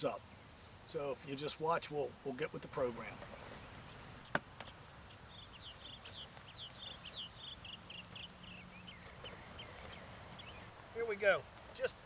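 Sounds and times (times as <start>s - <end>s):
faint outdoor background noise: 0.0s - 12.0s
songbird chirping: 0.0s - 12.0s.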